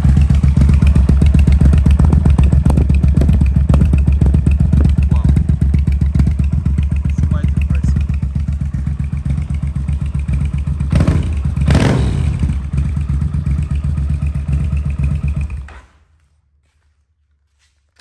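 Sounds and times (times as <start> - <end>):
motorcycle engine running loud: 0.0 - 15.7.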